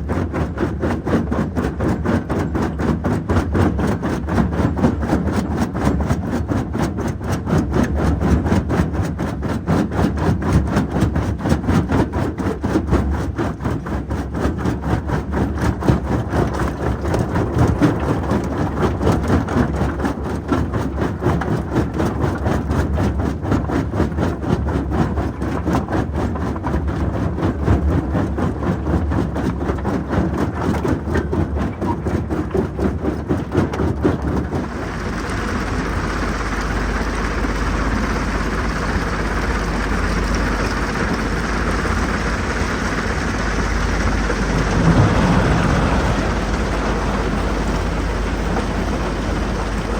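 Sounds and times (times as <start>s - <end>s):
jaw crusher diesel engine pulsing: 34.5s - 49.9s.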